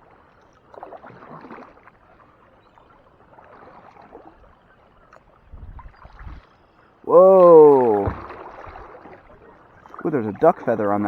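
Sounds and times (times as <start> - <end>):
paddle splashing and dripping: 0.0 - 11.0.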